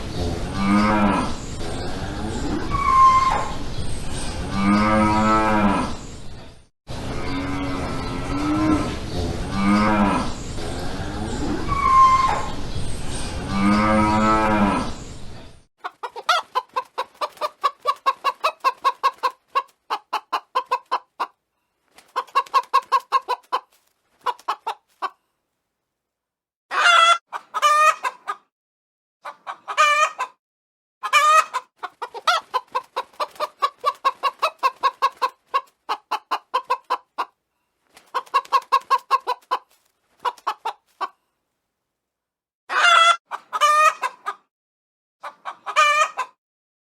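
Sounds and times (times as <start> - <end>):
chickens clucking: 14.9 - 25.2, 26.7 - 28.5, 29.2 - 30.4, 31.0 - 41.3, 42.7 - 44.5, 45.2 - 46.4.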